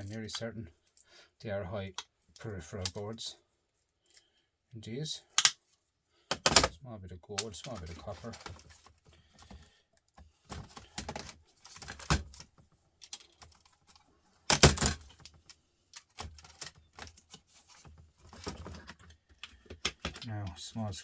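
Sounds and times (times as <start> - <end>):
laptop parts and tools clicking: 5.4 - 5.6, 6.3 - 6.7, 7.3 - 20.3.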